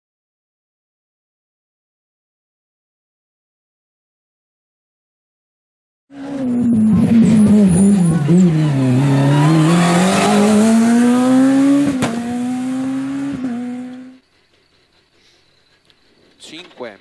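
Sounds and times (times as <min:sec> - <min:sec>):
high-revving rally car engine: 0:06.1 - 0:14.2.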